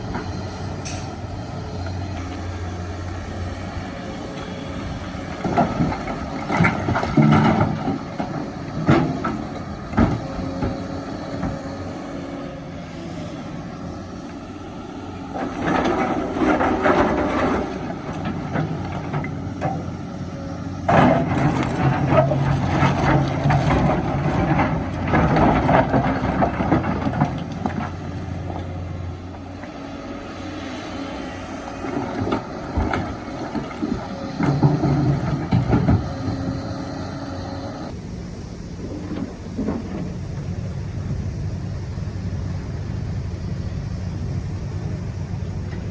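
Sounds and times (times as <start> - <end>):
excavator diesel engine: 0.0 - 45.9
rock scraping and clattering: 15.4 - 20.0, 20.8 - 28.6.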